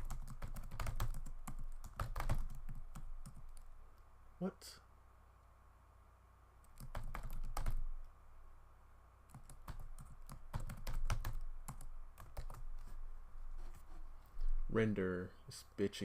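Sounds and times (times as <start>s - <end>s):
computer keyboard typing: 0.0s - 3.7s, 6.7s - 8.1s, 9.3s - 12.7s.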